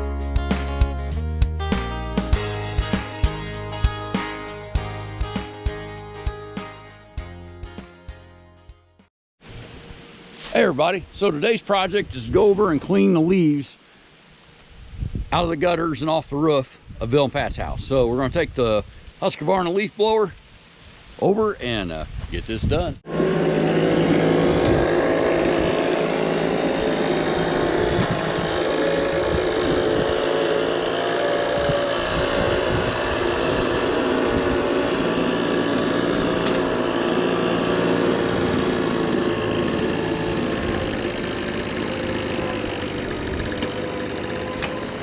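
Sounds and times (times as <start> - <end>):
leaf blower engine running: 1.7 - 6.6, 23.0 - 45.0.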